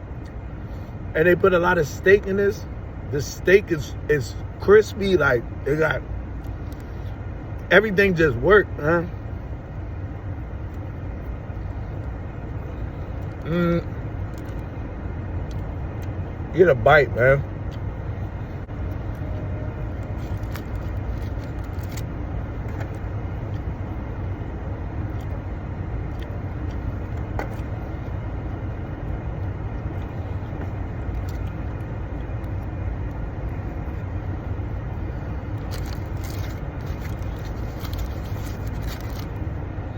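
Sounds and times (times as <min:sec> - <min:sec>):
low engine rumble: 0:00.0 - 0:39.9
faint clicks and rustles: 0:17.7 - 0:24.0, 0:29.3 - 0:39.6.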